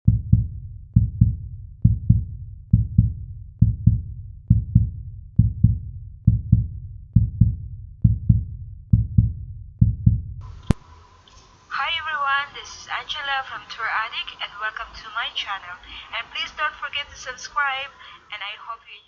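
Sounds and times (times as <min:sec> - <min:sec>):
heartbeat-like deep thumps: 0:00.1 - 0:10.6.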